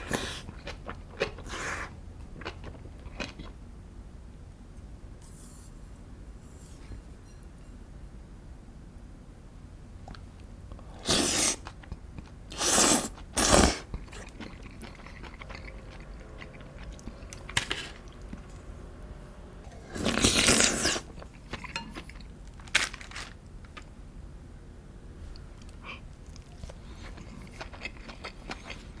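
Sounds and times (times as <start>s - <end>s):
person crunching crisp food: 11.0s - 18.5s, 19.9s - 23.9s, 26.2s - 29.0s.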